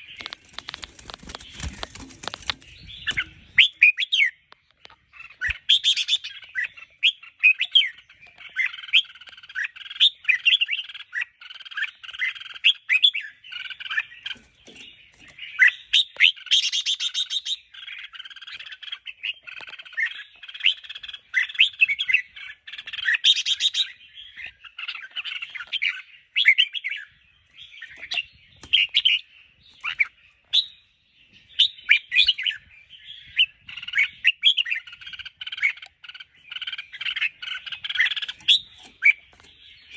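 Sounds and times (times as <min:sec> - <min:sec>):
bird song whistled notes: 0:02.6 - 0:04.5, 0:05.2 - 0:39.9.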